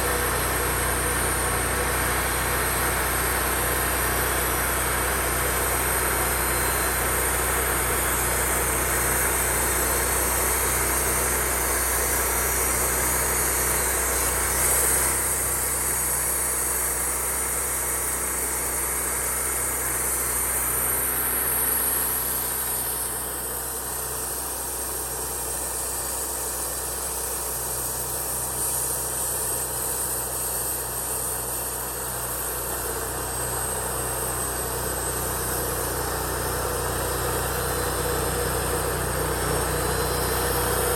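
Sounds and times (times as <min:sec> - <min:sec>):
engine running: 0:00.0 - 0:40.9.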